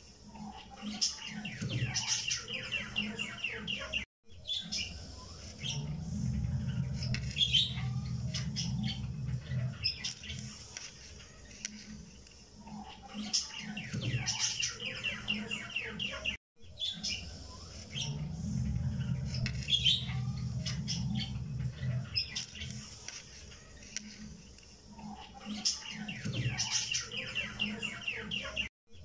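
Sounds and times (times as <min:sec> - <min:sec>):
bird chirping: 0:00.3 - 0:11.8, 0:12.6 - 0:24.3, 0:24.9 - 0:29.0
low steady hum: 0:04.8 - 0:09.9, 0:17.1 - 0:22.2.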